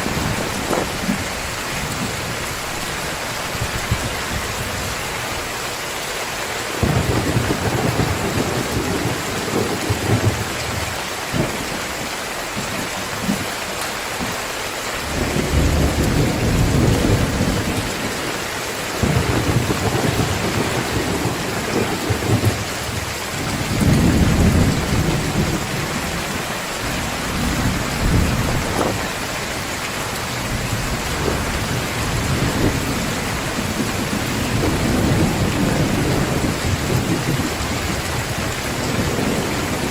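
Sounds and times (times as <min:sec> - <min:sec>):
thunder rumbling: 0:00.0 - 0:05.4, 0:06.8 - 0:12.0, 0:15.0 - 0:39.9
heavy rain pouring: 0:00.0 - 0:39.9.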